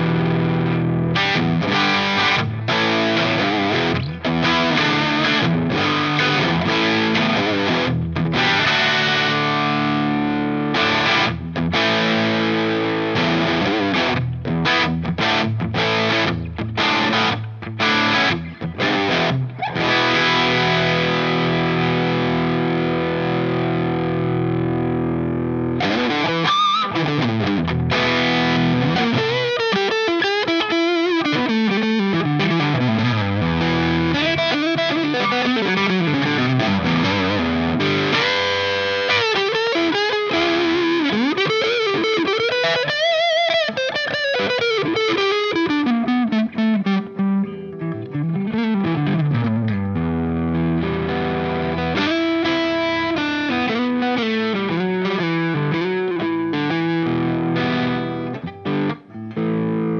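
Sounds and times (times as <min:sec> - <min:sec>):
overdriven electric guitar: 0:00.0 - 0:59.9.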